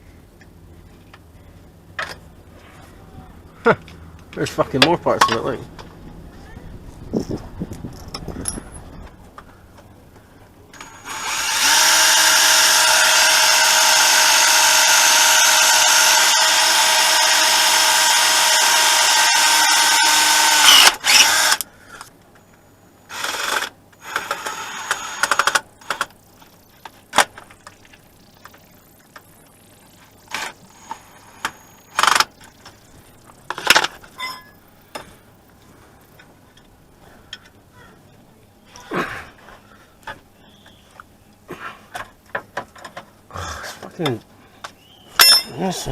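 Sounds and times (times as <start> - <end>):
power drill drilling: 10.8 - 21.6, 23.1 - 26.1, 30.3 - 32.5.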